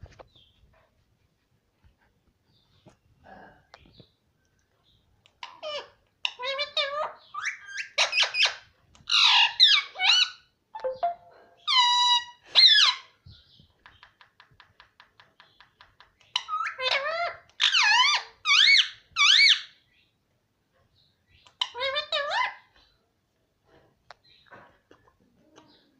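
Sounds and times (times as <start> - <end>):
parrot squeaky calls: 5.4 - 13.1, 16.3 - 19.8, 21.4 - 22.8.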